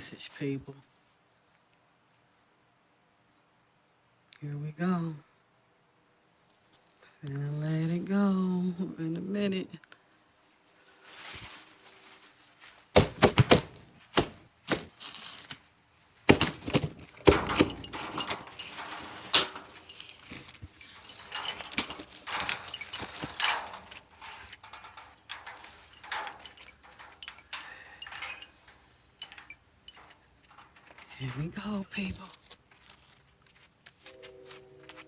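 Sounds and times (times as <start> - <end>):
soft rustling: 10.4 - 35.0
irregular knocks and thumps: 13.0 - 14.9, 16.3 - 19.6.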